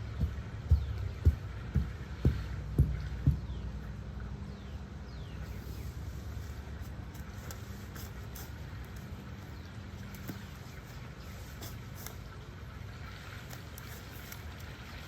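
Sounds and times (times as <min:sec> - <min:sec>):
low engine hum: 0:00.0 - 0:11.6
small birds chirping: 0:00.0 - 0:14.6.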